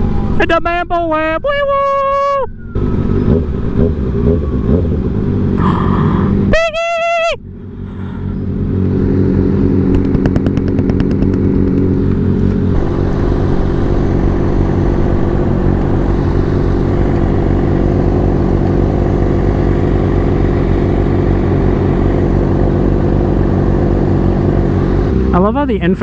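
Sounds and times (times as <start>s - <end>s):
motorcycle engine running: 2.5s - 6.6s, 7.4s - 26.0s
wind rushing over microphone: 11.9s - 25.4s.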